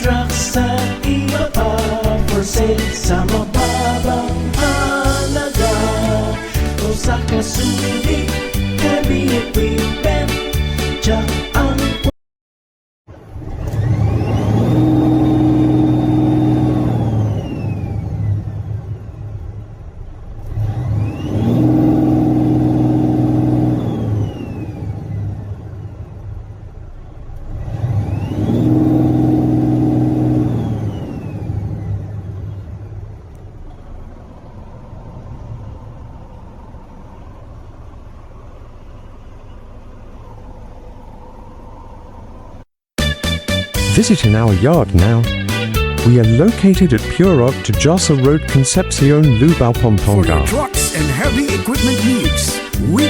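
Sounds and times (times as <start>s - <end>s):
truck engine idling: 0.0s - 12.0s
truck engine revving: 0.0s - 12.0s, 13.3s - 17.8s, 20.5s - 24.5s, 27.6s - 31.3s.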